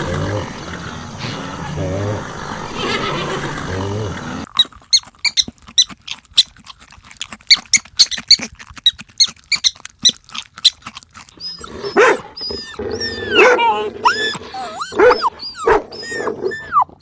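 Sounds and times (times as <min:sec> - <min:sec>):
animal whining cry: 0:00.0 - 0:05.5, 0:11.3 - 0:17.0
small animal squeaking: 0:04.5 - 0:06.5, 0:07.5 - 0:10.8, 0:11.4 - 0:17.0.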